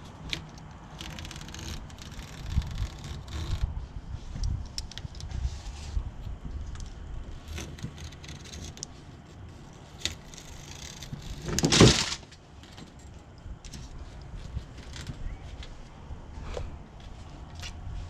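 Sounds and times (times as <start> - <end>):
loud scraping rustle: 0.0 - 4.6, 5.2 - 13.0.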